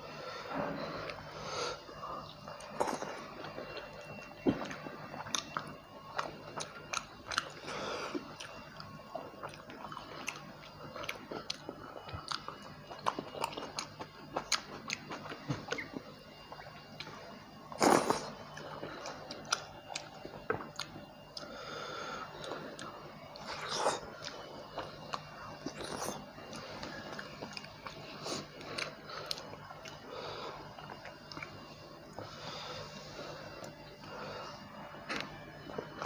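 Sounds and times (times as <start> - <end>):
wet chewing mouth sounds: 2.2 - 17.1.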